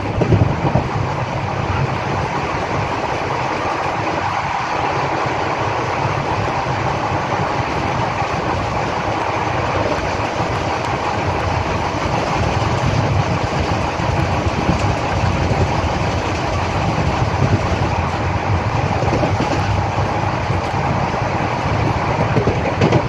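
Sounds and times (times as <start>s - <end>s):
rushing air: 0.0s - 23.0s
train wheels rumbling on rails: 0.0s - 23.0s.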